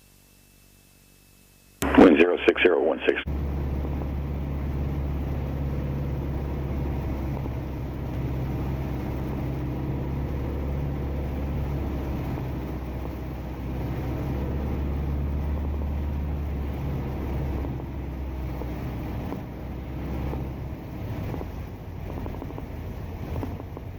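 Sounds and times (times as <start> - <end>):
propeller aircraft engine drone: 1.8 - 23.9.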